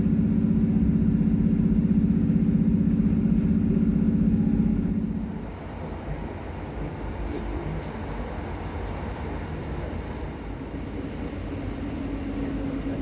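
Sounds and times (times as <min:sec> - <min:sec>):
steady humming note: 0:00.0 - 0:05.7
train wheels rumbling on track: 0:00.0 - 0:13.0.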